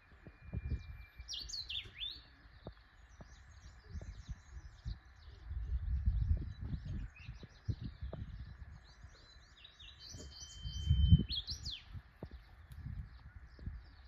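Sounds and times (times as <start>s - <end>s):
bird song with held whistle: 0.0s - 14.0s
birds chirping: 0.0s - 14.0s.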